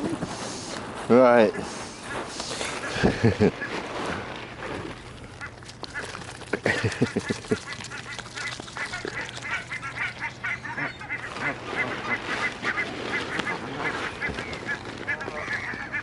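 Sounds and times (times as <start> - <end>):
geese honking: 1.4 - 16.0.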